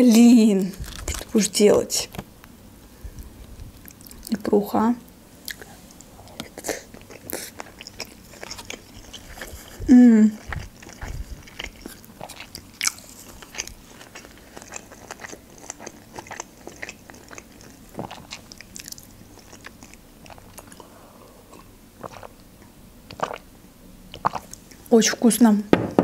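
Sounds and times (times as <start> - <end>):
wet chewing and mouth smacks: 3.8 - 4.4, 5.4 - 20.9, 21.5 - 23.4, 24.1 - 24.9.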